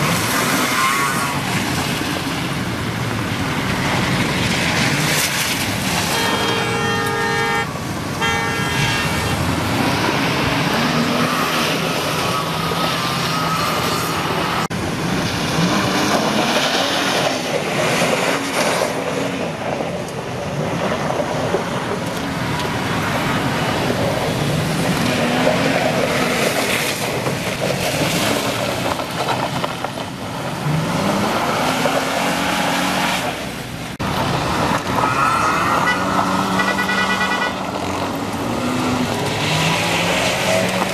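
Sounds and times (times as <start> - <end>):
car engines revving: 0.0 - 40.9
car horn: 0.6 - 1.4, 6.0 - 9.5, 35.0 - 37.7.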